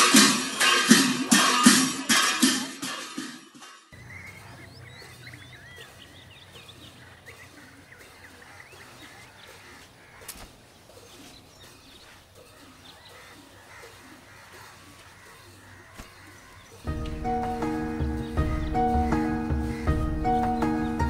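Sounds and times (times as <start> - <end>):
small birds chirping: 3.9 - 21.0.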